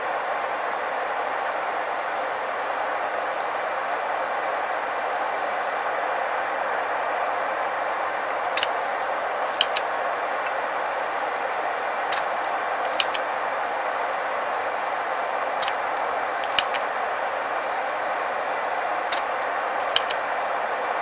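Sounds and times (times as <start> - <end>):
light sharp clicks: 8.5 - 9.0, 9.6 - 9.9, 12.1 - 13.3, 15.6 - 16.9, 19.1 - 20.2.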